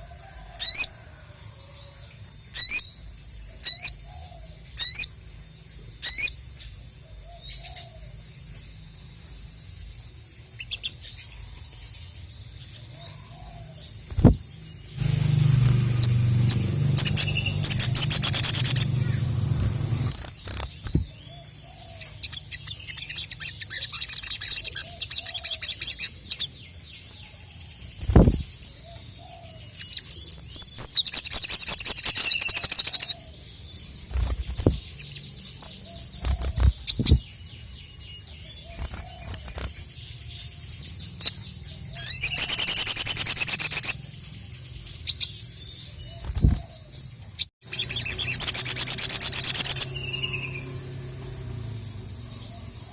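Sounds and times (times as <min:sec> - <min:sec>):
bird high-pitched chattering song: 0:02.5 - 0:02.9, 0:03.6 - 0:05.2, 0:06.0 - 0:06.4, 0:10.6 - 0:11.3, 0:15.0 - 0:26.6, 0:29.7 - 0:33.2, 0:34.0 - 0:37.4, 0:41.0 - 0:44.1, 0:47.6 - 0:50.9.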